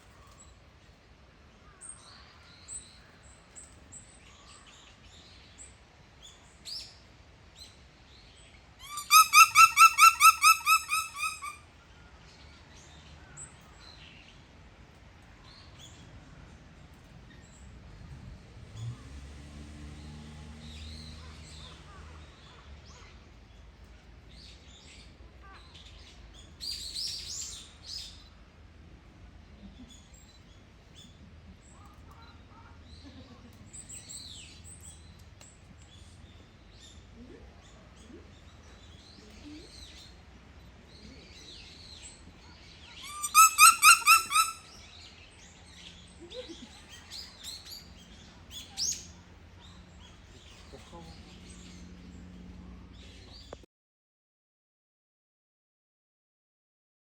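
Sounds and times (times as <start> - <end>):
dogs squeaking calls: 8.8 - 11.6, 43.0 - 44.8.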